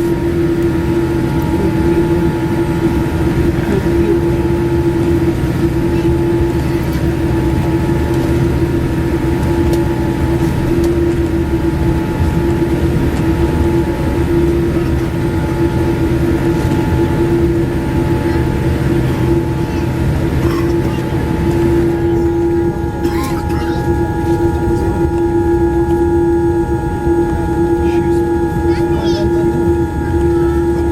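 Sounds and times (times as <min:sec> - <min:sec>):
constant humming tone: 0:00.0 - 0:30.9
vehicle cabin rumble: 0:00.0 - 0:30.9.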